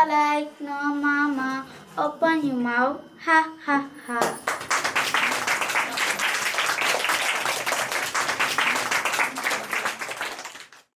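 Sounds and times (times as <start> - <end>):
group clapping: 4.2 - 11.0.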